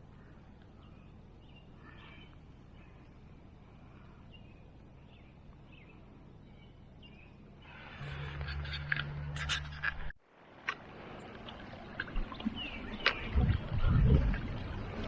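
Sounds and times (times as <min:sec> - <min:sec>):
low rumble: 0:10.9 - 0:15.0.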